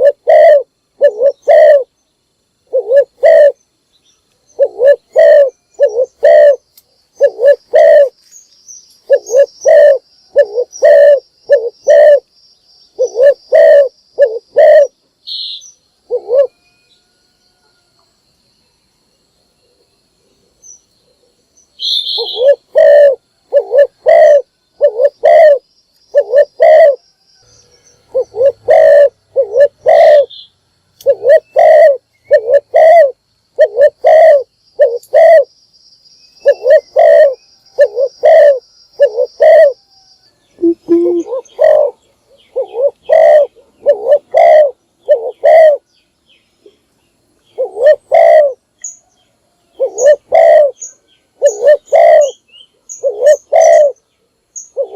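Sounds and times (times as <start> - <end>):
dove cooing: 0.0 - 1.9, 2.6 - 3.6, 4.5 - 8.2, 9.0 - 12.3, 12.9 - 15.0, 16.0 - 16.6, 21.8 - 27.0, 28.1 - 30.4, 31.0 - 35.5, 36.4 - 39.8, 40.6 - 45.8, 47.5 - 48.6, 49.7 - 54.0, 54.6 - 54.9.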